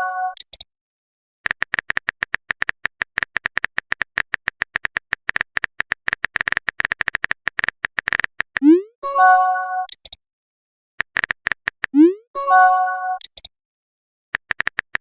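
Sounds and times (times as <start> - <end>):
fast keyboard typing: 1.4 - 8.7, 11.0 - 12.0, 14.4 - 15.0.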